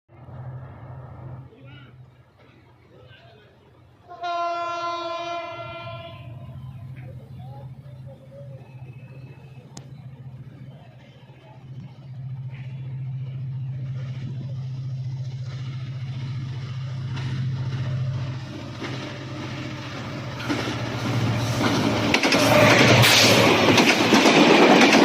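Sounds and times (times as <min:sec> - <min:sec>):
diesel locomotive engine drone: 0:00.1 - 0:25.0
train wheels on rails: 0:06.2 - 0:25.0.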